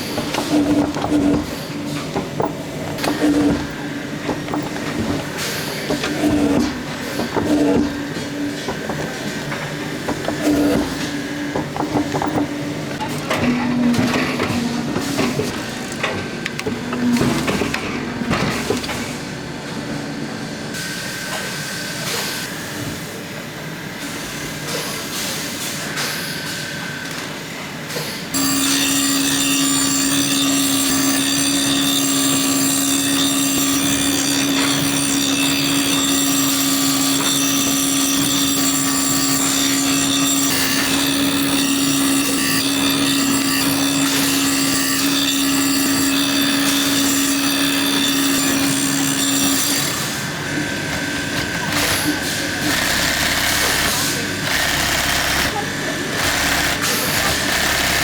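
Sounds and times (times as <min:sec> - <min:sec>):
handwork noise: 0:00.0 - 0:19.2.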